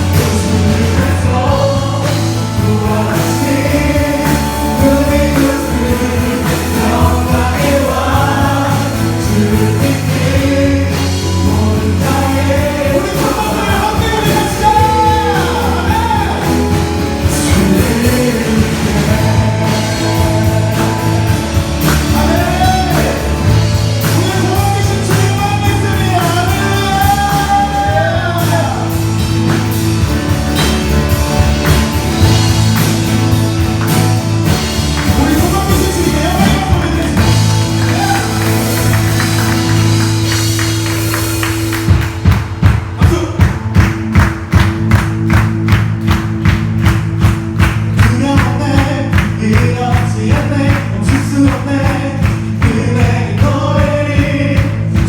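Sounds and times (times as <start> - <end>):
singers: 0.0 - 29.3, 34.1 - 41.7, 47.9 - 55.0
drum beats: 0.0 - 55.0
worship band playing: 0.0 - 55.0.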